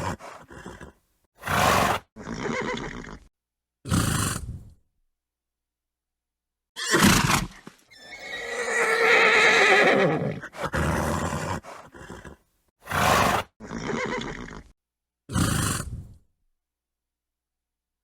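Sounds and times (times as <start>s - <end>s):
horse neighing: 0.0s - 3.3s, 6.8s - 14.7s
horse snorting: 0.0s - 3.3s, 3.9s - 4.7s, 6.8s - 14.7s, 15.3s - 16.2s.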